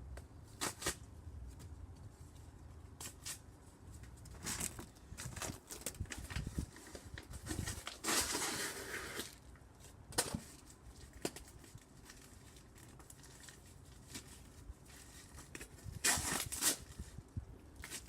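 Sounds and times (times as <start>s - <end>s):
cardboard rustling and crackling: 3.0s - 18.0s.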